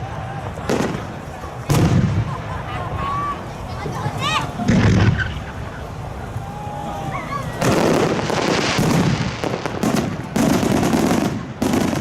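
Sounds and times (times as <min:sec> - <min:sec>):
fireworks bangs and crackling: 0:00.0 - 0:03.7, 0:04.5 - 0:06.4, 0:07.5 - 0:12.0.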